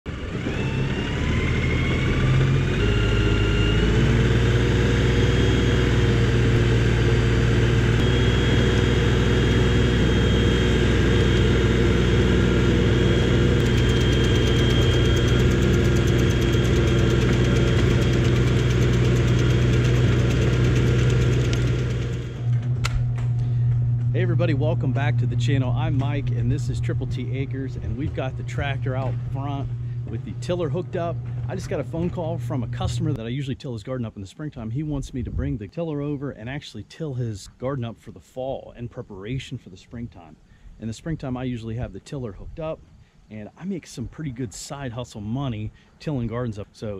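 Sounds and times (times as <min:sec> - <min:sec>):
tractor diesel engine running: 0:00.1 - 0:33.2.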